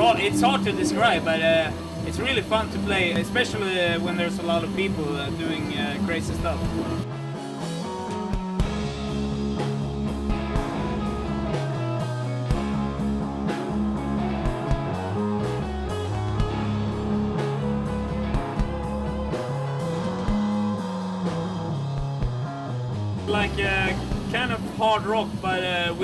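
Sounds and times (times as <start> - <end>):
bass guitar: 0.0 - 26.0
electric guitar: 0.0 - 26.0
steady drum beat: 0.0 - 26.0.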